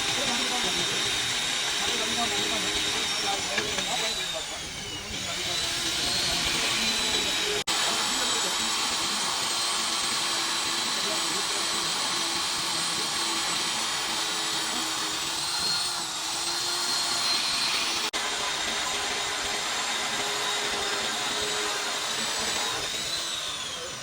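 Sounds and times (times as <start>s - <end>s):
power tool whining: 0.0s - 24.0s.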